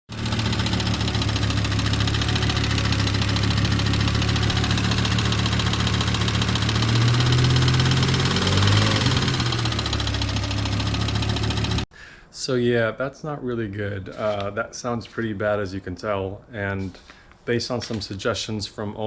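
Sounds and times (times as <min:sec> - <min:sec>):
rapid ticking-knocking engine noise: 0:00.1 - 0:11.8
car engine idling: 0:00.1 - 0:11.9.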